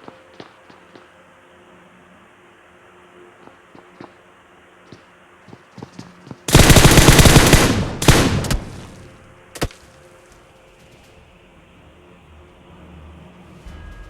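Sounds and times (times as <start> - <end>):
rapid bursts of sharp bangs: 6.5 - 9.8.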